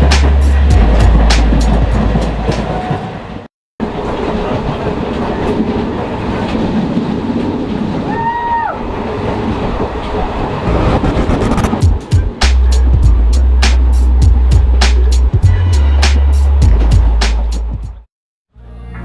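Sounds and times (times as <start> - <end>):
music with heavy bass: 0.0 - 2.3, 10.7 - 18.0
passenger train running on track: 0.0 - 18.1.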